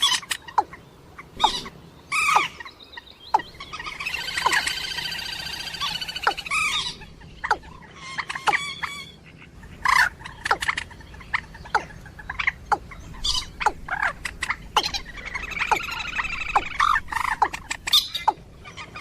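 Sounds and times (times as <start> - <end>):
sharp down-sweeping bird calls: 0.0 - 19.0
waterbird harsh repeated notes: 11.7 - 18.5.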